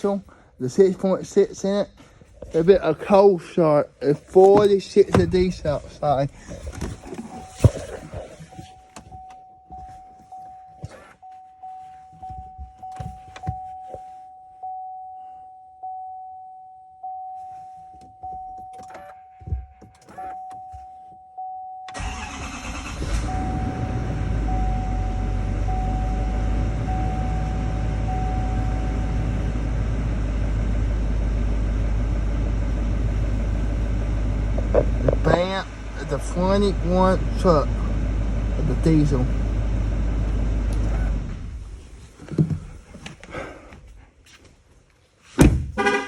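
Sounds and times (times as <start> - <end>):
diesel engine starting and idling: 22.0 - 42.0
warning chime beeping: 23.1 - 29.4.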